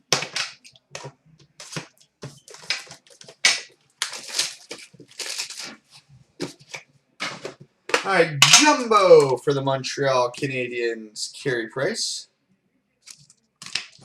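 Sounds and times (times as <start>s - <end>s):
foil wrappers tearing and crinkling: 1.0s - 5.9s, 13.0s - 14.0s.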